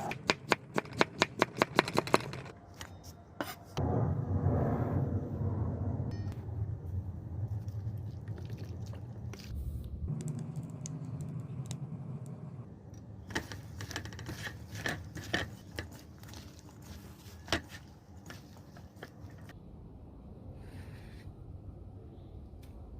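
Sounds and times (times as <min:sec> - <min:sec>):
kitchen utensils clicking and scraping: 0:13.3 - 0:19.5.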